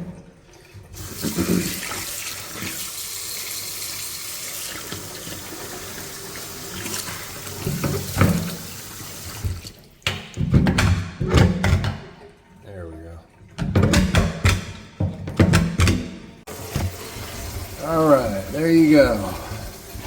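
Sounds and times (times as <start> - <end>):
faucet running into sink: 0.0 - 10.8, 16.5 - 20.0
clunks in sink: 7.6 - 8.6, 9.4 - 12.2, 13.5 - 17.0.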